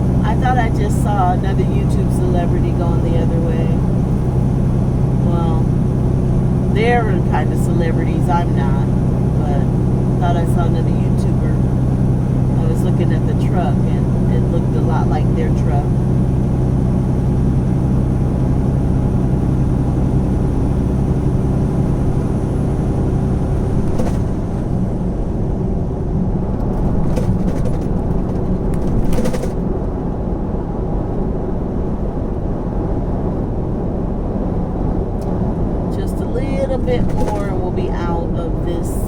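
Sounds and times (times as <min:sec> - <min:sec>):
road rumble: 0:00.0 - 0:39.0
truck diesel engine hum: 0:00.0 - 0:39.0.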